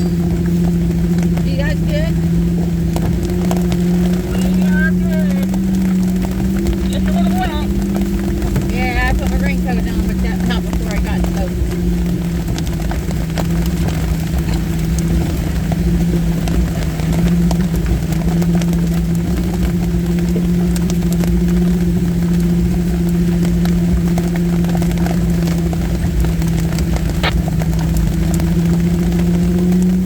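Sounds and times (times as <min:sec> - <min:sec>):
vehicle engine droning: 0:00.0 - 0:30.0.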